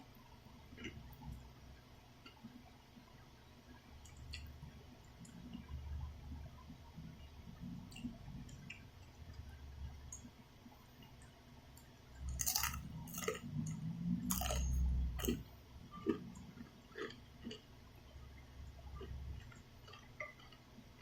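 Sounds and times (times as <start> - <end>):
person chewing noodles: 0.7 - 1.4, 12.2 - 17.8, 18.4 - 21.0.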